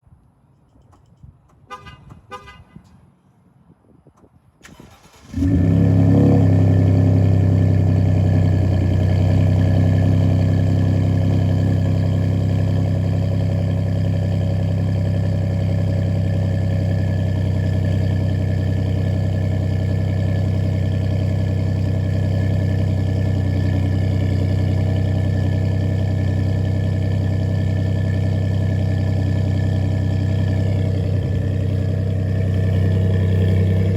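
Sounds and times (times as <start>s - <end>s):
truck engine starting and idling: 4.6s - 33.9s.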